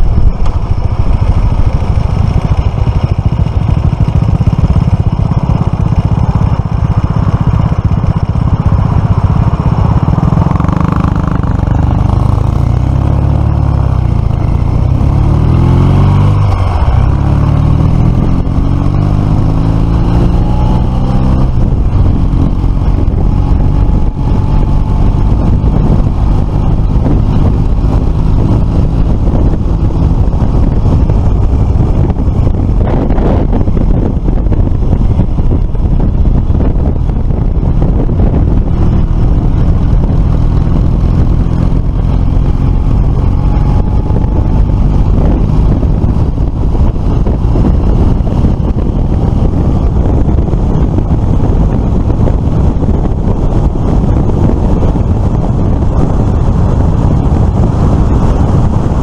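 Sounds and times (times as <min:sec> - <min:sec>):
motorcycle engine revving: 0:00.0 - 0:59.0
wind rushing over microphone: 0:00.0 - 0:59.0.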